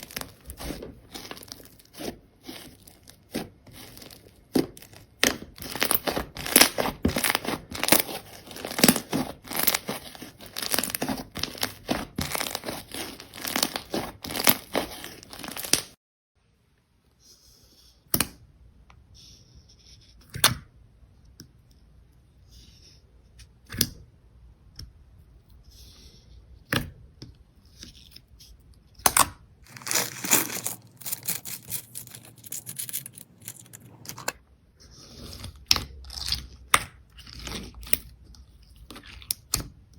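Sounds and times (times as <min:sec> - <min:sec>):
slime squeezed crackling and popping: 0:00.0 - 0:15.9, 0:29.1 - 0:33.5.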